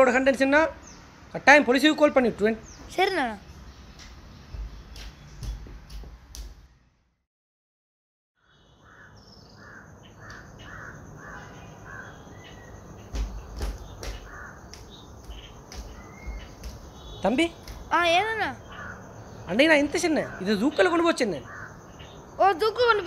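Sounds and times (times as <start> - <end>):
bird calling: 8.4 - 23.0.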